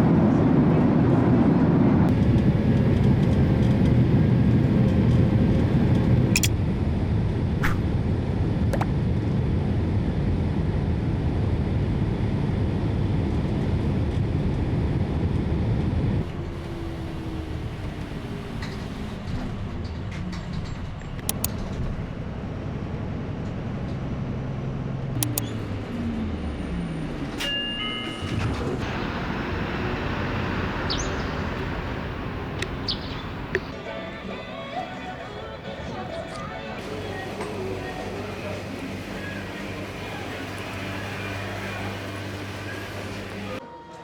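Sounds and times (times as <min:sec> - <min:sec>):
vehicle rumble: 0:00.0 - 0:43.6
sharp clicks: 0:21.2 - 0:21.6, 0:25.2 - 0:25.6, 0:30.8 - 0:33.7
falling whines: 0:25.2 - 0:43.6.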